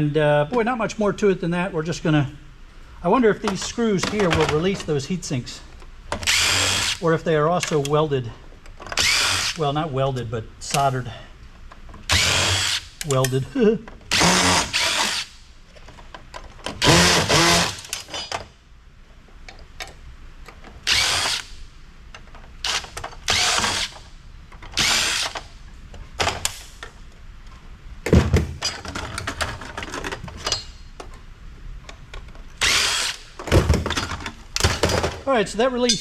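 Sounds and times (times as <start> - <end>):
cordless drill bursts: 6.2 - 7.0, 9.0 - 9.6, 12.1 - 13.0, 14.1 - 15.3, 16.8 - 17.9, 20.9 - 21.5, 22.6 - 24.0, 24.8 - 25.4, 32.6 - 33.3
metal parts clicking and knocking: 15.8 - 18.5, 28.6 - 31.2.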